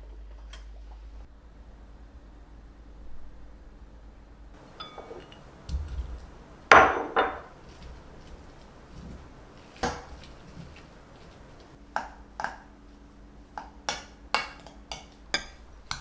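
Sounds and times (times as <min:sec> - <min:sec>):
glass clinks: 0:04.6 - 0:11.7
dull thud: 0:04.6 - 0:11.8
sharp knocks: 0:04.6 - 0:11.8.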